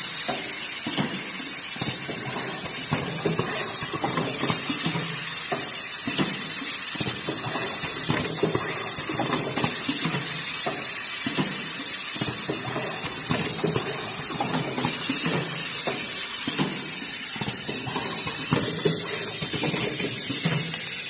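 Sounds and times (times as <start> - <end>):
packaging machine hissing: 0.0 - 21.0
machine clicks and knocks: 0.2 - 20.9.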